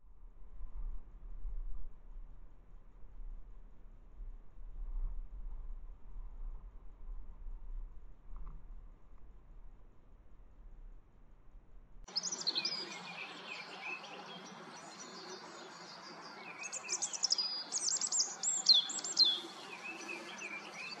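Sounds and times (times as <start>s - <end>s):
small birds chirping: 12.1s - 21.0s
steady background hiss: 12.1s - 21.0s.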